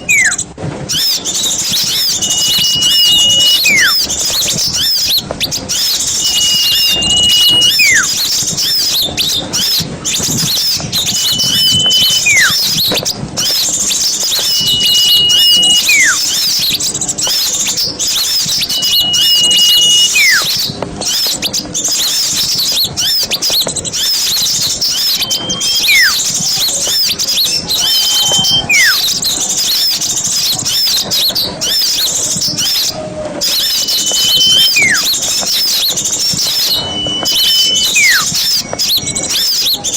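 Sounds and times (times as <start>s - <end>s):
small birds chattering: 0.0s - 39.9s
whistled note dropping in pitch: 1.6s - 4.1s, 6.1s - 8.1s, 11.0s - 12.8s, 14.2s - 16.4s, 18.2s - 20.6s, 24.9s - 26.3s, 27.6s - 29.1s, 33.4s - 39.9s.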